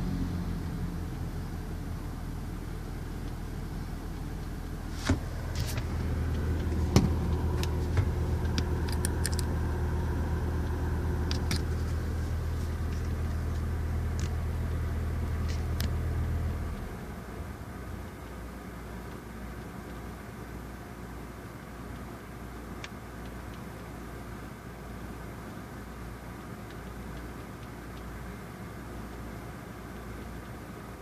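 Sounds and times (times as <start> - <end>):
car engine humming: 0.0 - 21.1.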